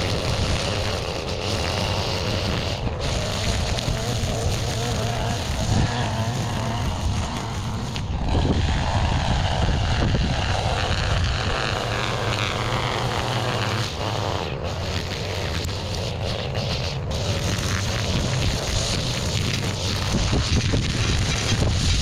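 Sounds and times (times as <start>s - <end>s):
small engine humming: 0.0s - 22.0s.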